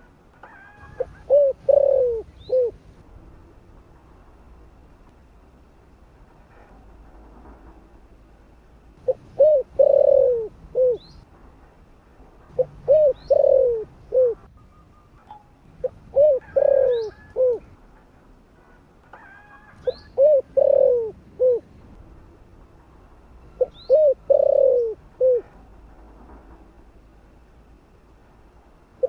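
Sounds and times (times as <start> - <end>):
dove cooing: 0.4 - 2.9, 9.0 - 11.2, 12.5 - 14.5, 15.8 - 17.8, 19.2 - 21.7, 23.6 - 25.6.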